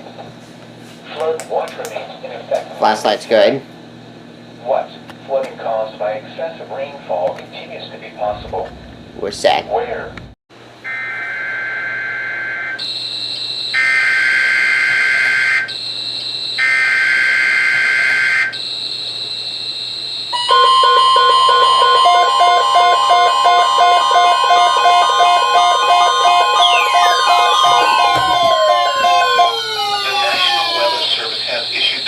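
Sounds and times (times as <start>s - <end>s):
pulsing two-note alarm: 20.3s - 32.0s.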